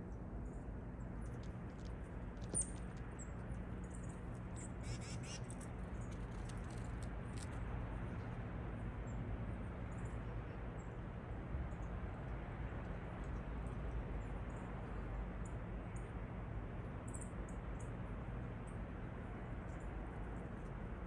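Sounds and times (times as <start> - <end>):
low outdoor rumble: 0.0 - 21.0
small birds chirping: 2.4 - 7.0.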